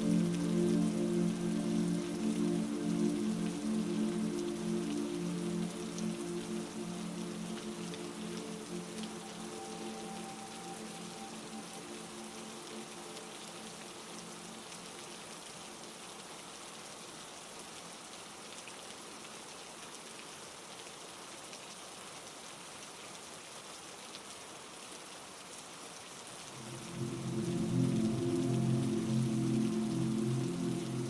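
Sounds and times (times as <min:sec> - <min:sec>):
soft held music tone: 0:00.0 - 0:16.2, 0:26.5 - 0:31.0
heavy rain hiss: 0:00.0 - 0:21.2, 0:21.9 - 0:31.0.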